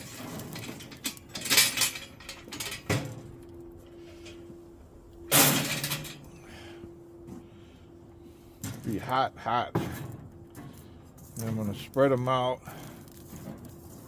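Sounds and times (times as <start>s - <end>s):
charcoal clattering into grill: 0.0s - 3.2s, 5.3s - 6.2s
metallic clatter: 0.0s - 3.3s, 5.3s - 6.3s.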